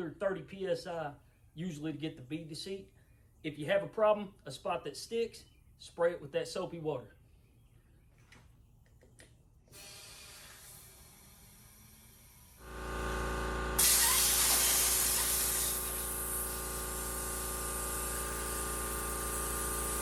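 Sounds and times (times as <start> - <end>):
motor humming: 12.6 - 20.0
compressed air hissing into tyre: 13.8 - 17.3.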